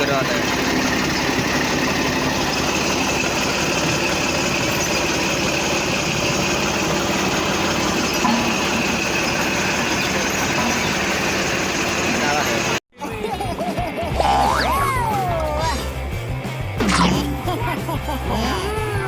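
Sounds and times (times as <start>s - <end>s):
motor running steadily: 0.0s - 12.8s.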